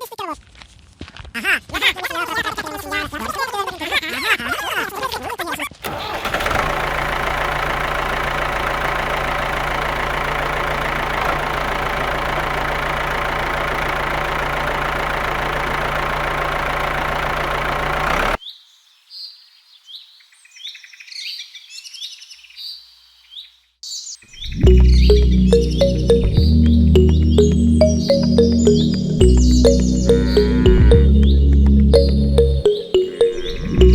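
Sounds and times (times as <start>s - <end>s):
birds chirping: 24.7s - 33.9s.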